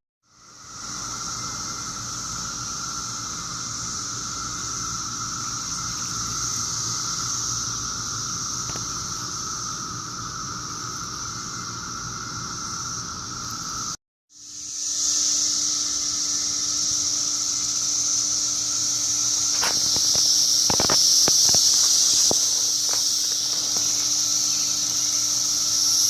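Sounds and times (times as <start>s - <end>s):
cicadas buzzing in chorus: 0.2s - 26.0s.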